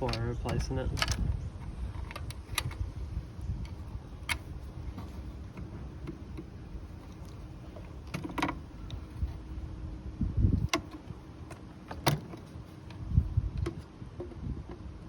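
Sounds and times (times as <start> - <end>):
sharp clicks: 0.0 - 3.0.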